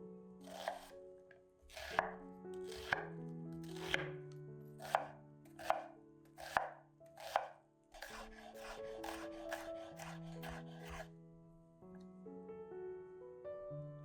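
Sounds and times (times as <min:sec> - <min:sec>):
soft background music: 0:00.0 - 0:14.0
knife chopping on cutting board: 0:00.4 - 0:00.9, 0:01.7 - 0:04.1, 0:04.8 - 0:11.1.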